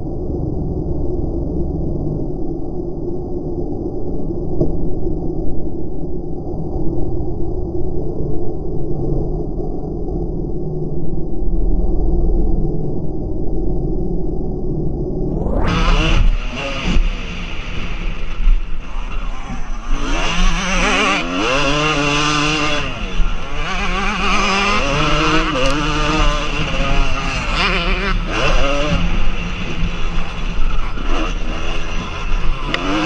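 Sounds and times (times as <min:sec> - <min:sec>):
motocross bike engines revving: 0:15.4 - 0:33.0.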